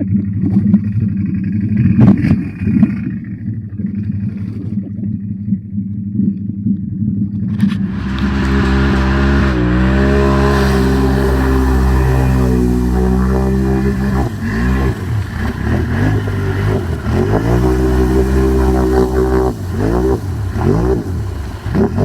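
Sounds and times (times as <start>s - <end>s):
atv engine revving: 7.5s - 22.0s
loud rushing hiss: 7.8s - 22.0s.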